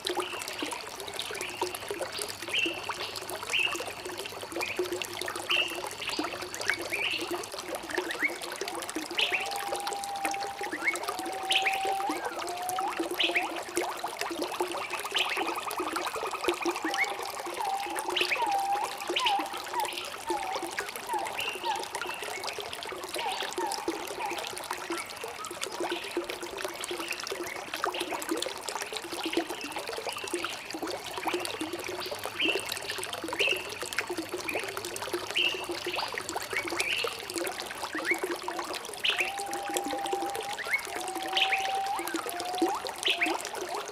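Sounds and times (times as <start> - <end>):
water trickling and splashing: 0.0 - 43.9
birds chirping and calling: 17.6 - 22.1, 40.6 - 43.4.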